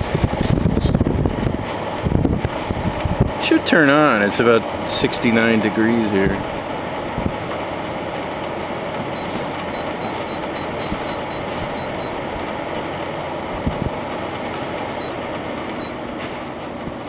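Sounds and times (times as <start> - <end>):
short high-pitched beeps: 9.1 - 12.2.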